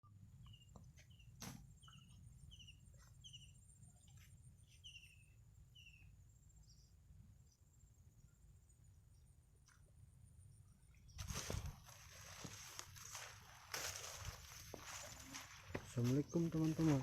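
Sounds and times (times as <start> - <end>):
bird chirping: 0.2 - 9.3.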